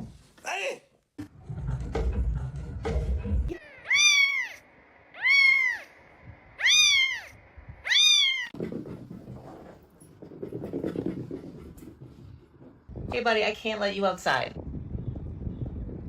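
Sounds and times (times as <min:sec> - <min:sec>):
cat meowing: 0:03.5 - 0:06.0, 0:06.6 - 0:08.6.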